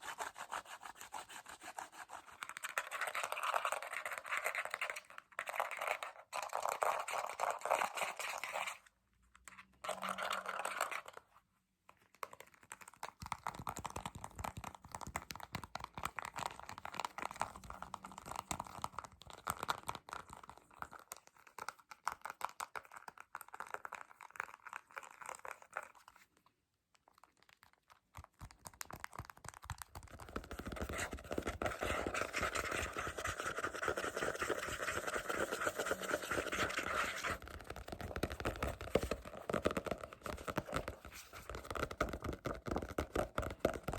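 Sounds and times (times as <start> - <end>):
asmr tapping and scratching: 28.4 - 43.9.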